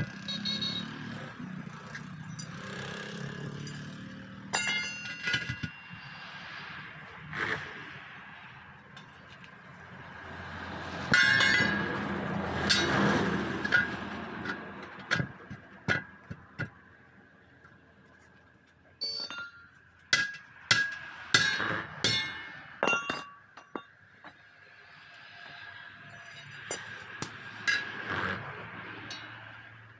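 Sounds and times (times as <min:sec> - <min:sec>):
metal scraping and clatter: 0:01.8 - 0:06.4, 0:11.1 - 0:16.5, 0:26.0 - 0:29.7
hammer striking steel rim: 0:04.5 - 0:05.8, 0:19.0 - 0:23.8.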